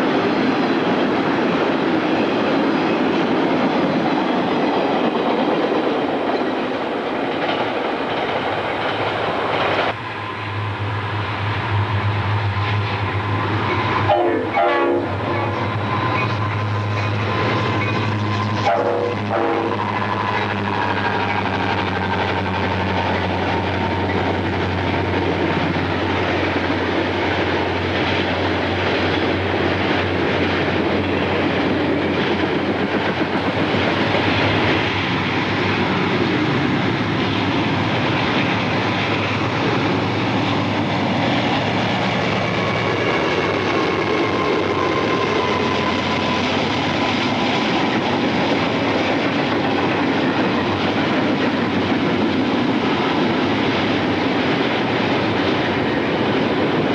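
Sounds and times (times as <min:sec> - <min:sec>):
diesel locomotive engine humming: 0:00.0 - 0:56.9
railroad cars rolling on rails: 0:00.0 - 0:56.9.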